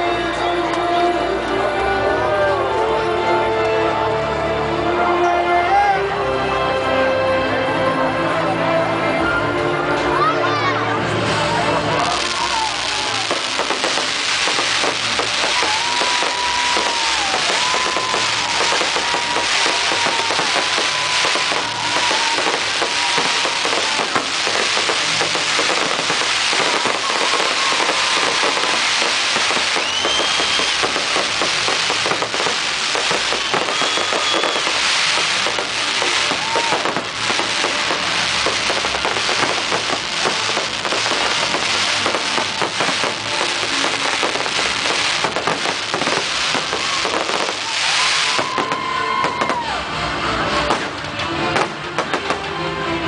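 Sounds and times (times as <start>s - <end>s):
music: 0.0s - 53.0s
fireworks crackling: 11.2s - 52.5s
whistling firework: 12.0s - 49.8s
dense hissing rush: 12.1s - 49.2s.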